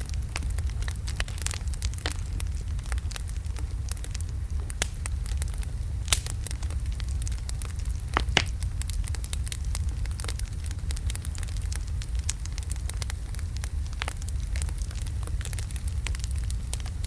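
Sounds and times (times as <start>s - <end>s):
burning wood popping and snapping: 0.0s - 17.0s
fire rumbling: 0.0s - 17.0s.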